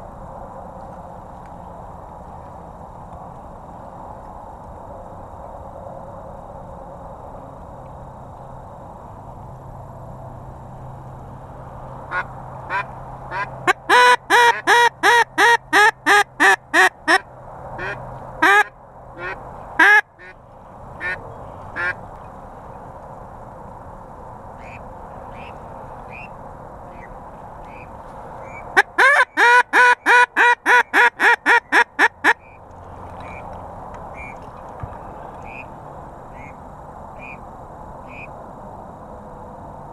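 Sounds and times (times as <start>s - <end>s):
duck quacking: 12.1s - 17.2s, 17.8s - 20.4s, 21.0s - 21.2s, 21.8s - 22.0s.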